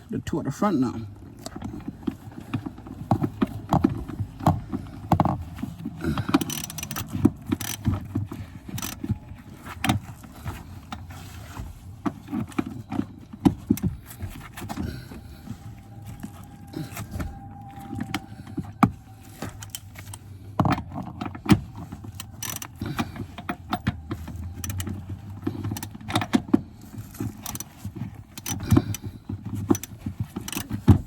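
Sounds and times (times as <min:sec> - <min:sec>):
wrench clicking and clinking on metal: 0:04.9 - 0:09.2, 0:19.4 - 0:31.0.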